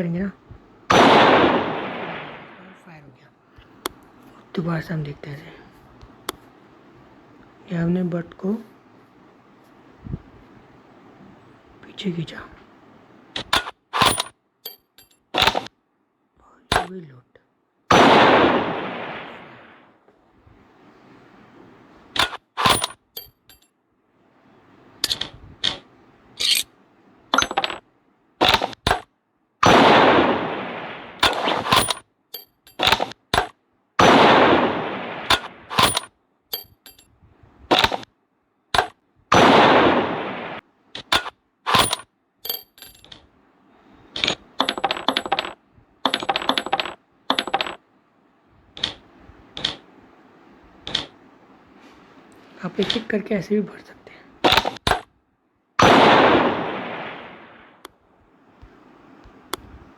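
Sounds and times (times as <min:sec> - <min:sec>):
rifle bolt clicks and clacks: 0:13.4 - 0:15.7, 0:22.2 - 0:23.7, 0:25.0 - 0:25.8, 0:28.4 - 0:29.1, 0:31.2 - 0:33.6, 0:35.3 - 0:37.1, 0:41.0 - 0:43.3, 0:44.2 - 0:47.8, 0:48.8 - 0:49.8
rifle clattering bursts: 0:13.4 - 0:15.7, 0:22.2 - 0:23.6, 0:31.2 - 0:37.0, 0:40.4 - 0:43.0.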